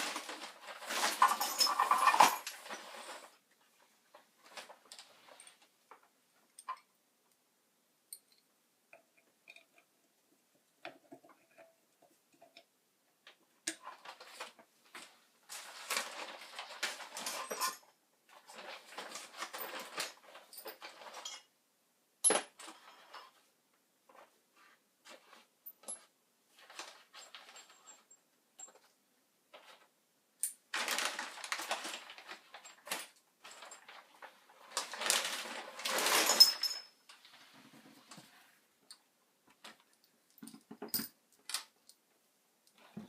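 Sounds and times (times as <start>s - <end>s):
hands scraping and rustling parts: 0.0s - 6.9s.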